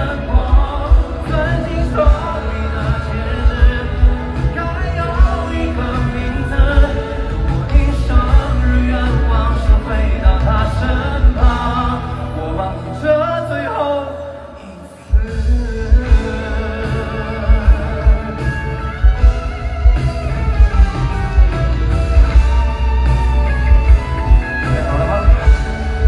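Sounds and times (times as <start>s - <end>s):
person singing: 0.0s - 20.1s
live pop band: 0.0s - 26.0s.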